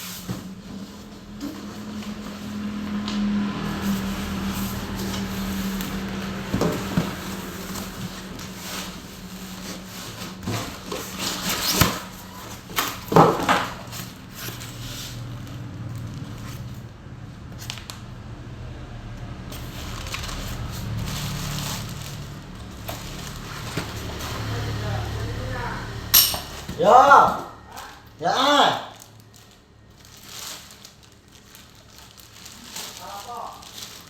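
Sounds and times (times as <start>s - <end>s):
knocks and rustling of packaging: 0.0s - 16.8s, 19.5s - 24.9s, 29.3s - 34.0s.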